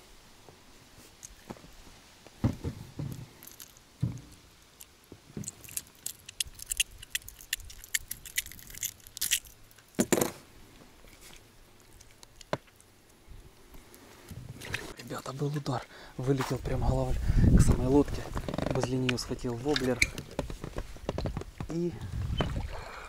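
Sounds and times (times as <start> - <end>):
fishing tackle clicks and scrapes: 3.1 - 10.4
patter of small ticks: 3.2 - 10.0, 10.7 - 14.8.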